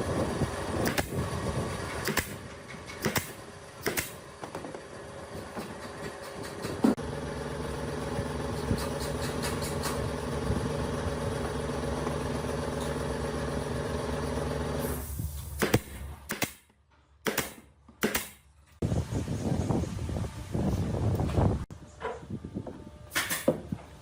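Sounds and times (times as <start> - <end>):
motor running steadily: 3.4 - 15.0.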